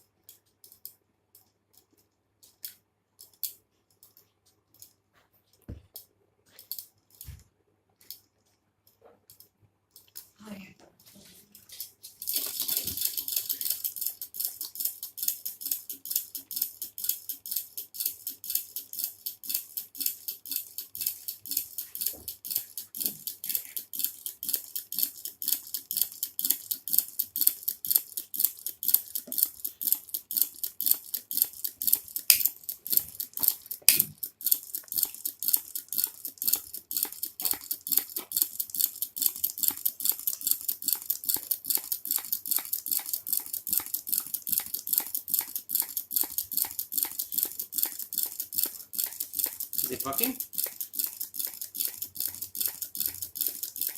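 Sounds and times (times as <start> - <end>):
small engine ticking clatter: 12.2 - 53.9.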